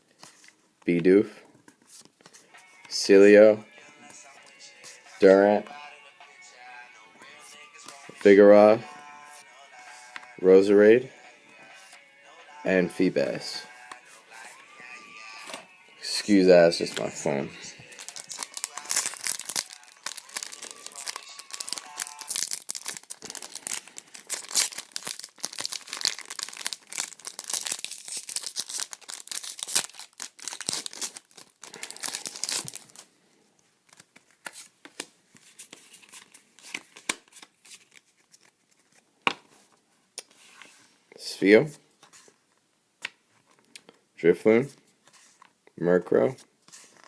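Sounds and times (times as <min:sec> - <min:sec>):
foil wrappers tearing and crinkling: 0:17.9 - 0:33.0.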